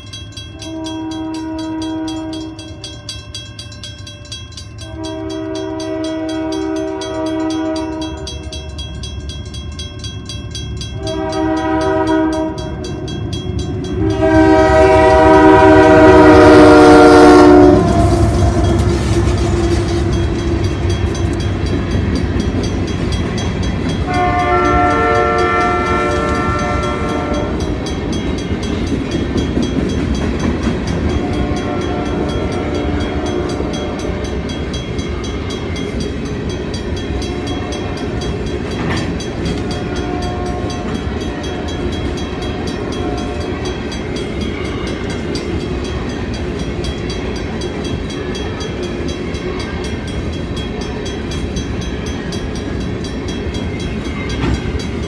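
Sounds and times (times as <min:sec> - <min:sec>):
freight train rumbling and rattling: 0:00.0 - 0:55.0
train horn: 0:00.6 - 0:02.9, 0:04.8 - 0:08.6, 0:11.0 - 0:13.0, 0:13.9 - 0:20.4, 0:24.1 - 0:27.7, 0:31.2 - 0:34.2, 0:39.6 - 0:41.2.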